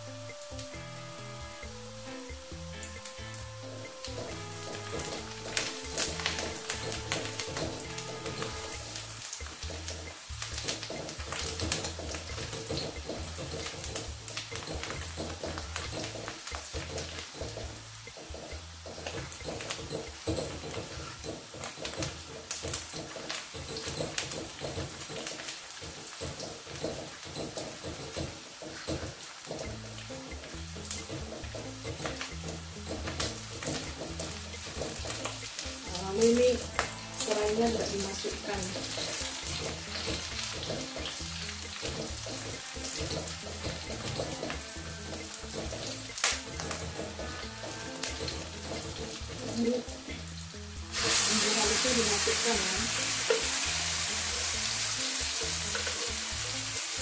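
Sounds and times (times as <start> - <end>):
aromatics sizzling in hot oil: 0.0 - 57.0
background music: 0.0 - 57.0.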